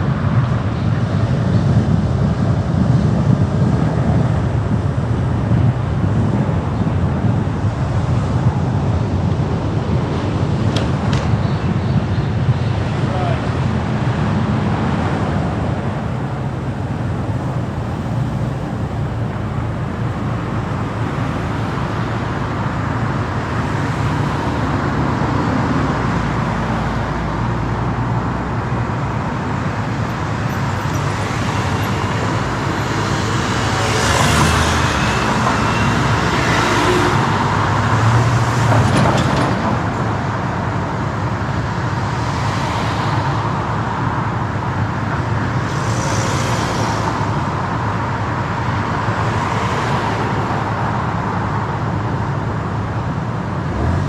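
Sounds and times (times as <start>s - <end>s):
city traffic: 0.0s - 54.0s
road noise: 0.0s - 54.0s
car engine hum: 14.1s - 38.6s.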